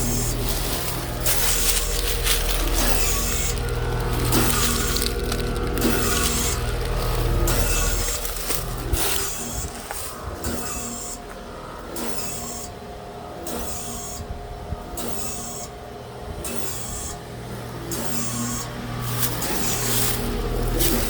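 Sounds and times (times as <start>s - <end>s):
pulsing hiss: 0.0s - 11.2s
heat pump humming: 0.0s - 21.0s.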